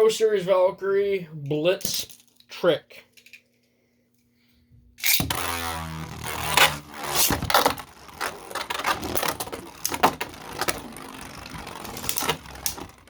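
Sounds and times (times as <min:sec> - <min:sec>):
whir of spinning tops: 0:05.0 - 0:13.0.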